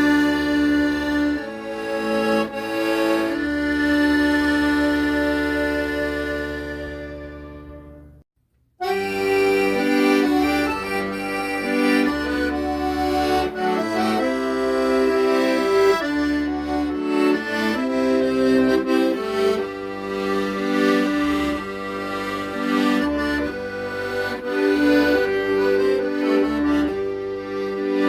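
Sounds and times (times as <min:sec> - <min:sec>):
accordion music: 0:00.0 - 0:08.2, 0:08.8 - 0:28.0.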